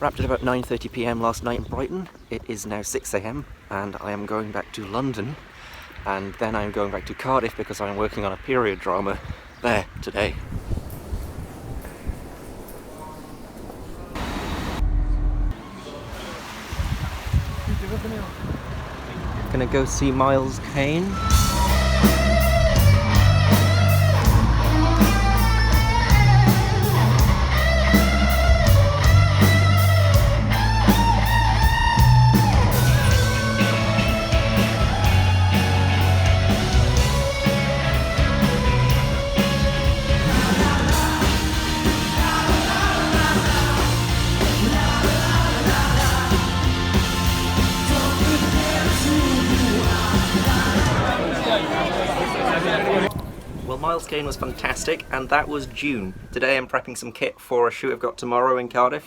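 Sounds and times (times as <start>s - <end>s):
electric guitar: 21.2s - 51.1s
bass guitar: 21.2s - 51.2s
steady drum beat: 21.3s - 51.1s
person singing: 40.1s - 51.2s.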